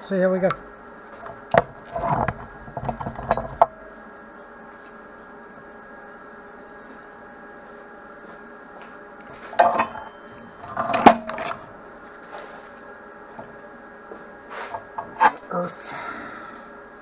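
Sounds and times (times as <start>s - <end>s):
electrical hum: 0.0s - 17.0s
metal clanking with ringing: 0.4s - 4.0s, 9.3s - 15.8s.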